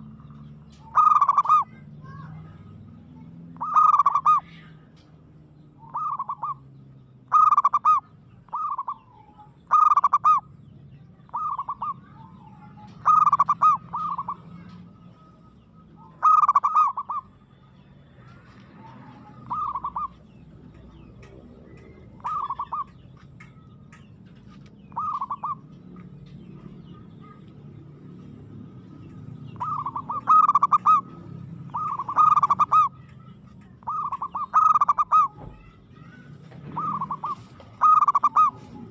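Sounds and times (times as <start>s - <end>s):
dove cooing: 0.0s - 2.6s, 3.5s - 4.7s, 5.8s - 6.7s, 7.3s - 10.5s, 11.2s - 17.5s, 18.7s - 23.1s, 24.9s - 25.8s, 28.4s - 38.9s.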